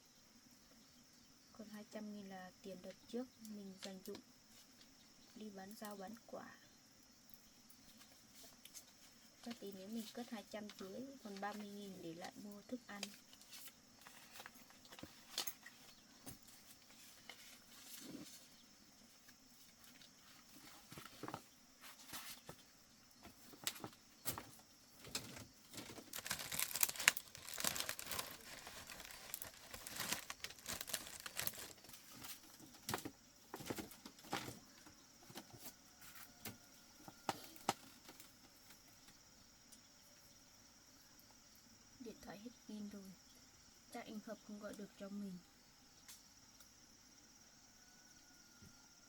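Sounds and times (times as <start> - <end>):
insects chirring: 0.0 - 49.0
banknotes rustling: 25.1 - 32.4.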